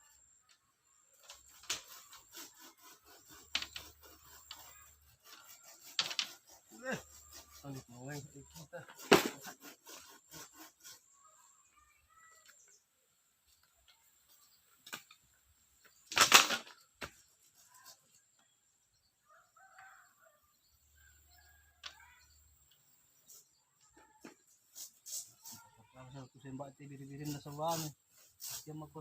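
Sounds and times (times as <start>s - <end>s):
wing flapping: 16.1s - 16.8s.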